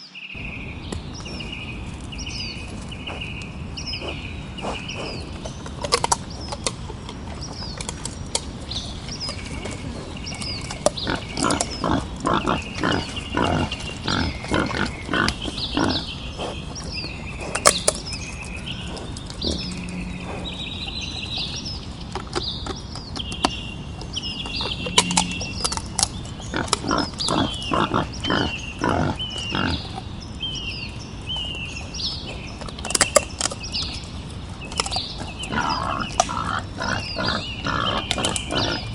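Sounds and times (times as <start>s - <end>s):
small birds chirping: 11.0s - 16.2s, 26.5s - 30.0s, 35.4s - 38.9s
wild boar grunting: 11.1s - 16.1s, 26.5s - 30.0s, 35.4s - 38.9s.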